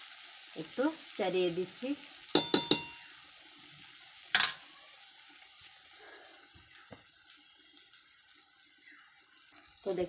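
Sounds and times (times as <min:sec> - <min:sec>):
batter sizzling in oil: 0:00.0 - 0:10.0
metal spoon clink: 0:02.4 - 0:03.0.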